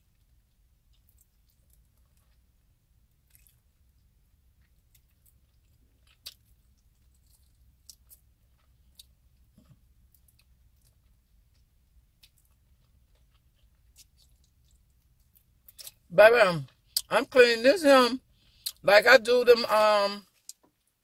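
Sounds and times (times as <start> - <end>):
wet chewing smacks and clicks: 3.1 - 16.1.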